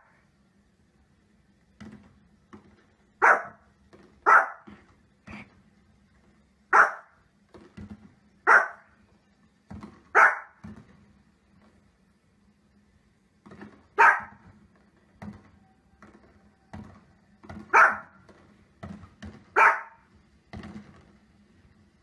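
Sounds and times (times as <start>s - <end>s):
small dog barking: 3.2s - 3.6s, 4.2s - 4.7s, 6.7s - 7.2s, 8.4s - 8.9s, 10.1s - 10.6s, 14.0s - 14.4s, 17.7s - 18.2s, 19.5s - 20.1s.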